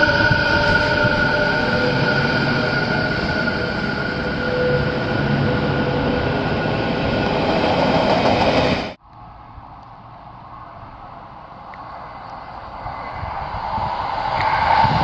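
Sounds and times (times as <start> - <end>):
steady high tone: 0.0 - 8.8
electric train rolling rumble: 0.0 - 15.0.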